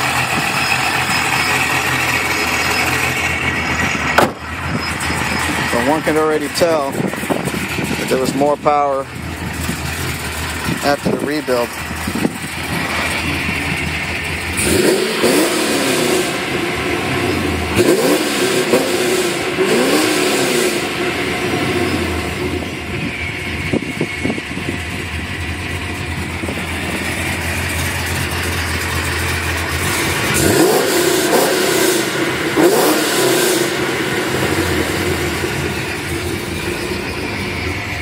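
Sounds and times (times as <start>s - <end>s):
car engine idling and revving: 0.0s - 38.0s.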